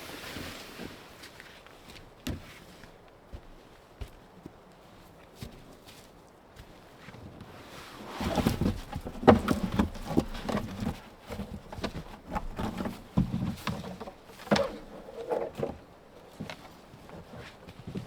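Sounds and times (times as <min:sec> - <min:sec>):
short knocks and thumps: 0:08.4 - 0:18.0.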